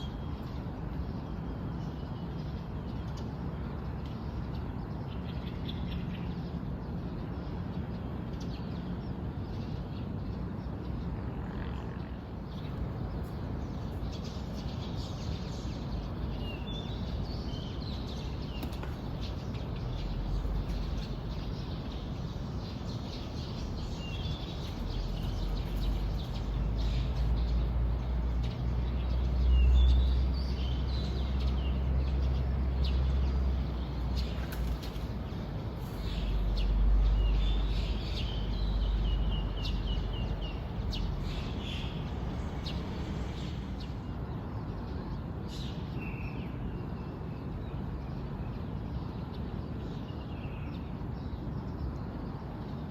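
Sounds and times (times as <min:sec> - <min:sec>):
small birds chirping: 0:12.0 - 0:46.6.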